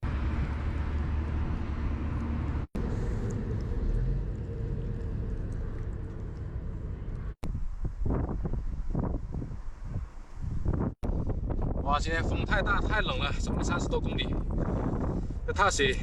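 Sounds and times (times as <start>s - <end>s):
road and engine rumble: 0.0s - 10.9s
wind noise: 0.0s - 16.0s.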